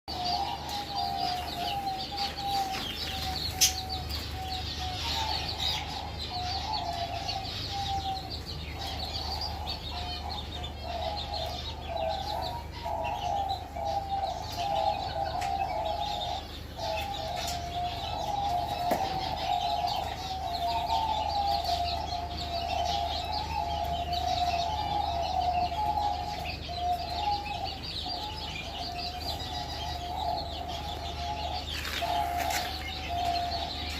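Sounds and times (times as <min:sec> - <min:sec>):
high chirping: 0:00.0 - 0:33.9
chickens clucking: 0:00.1 - 0:33.9.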